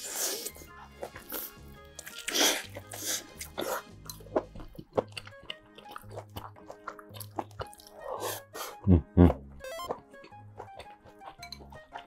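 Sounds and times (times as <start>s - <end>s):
background music: 0.0s - 12.0s
man chewing food: 0.0s - 12.0s.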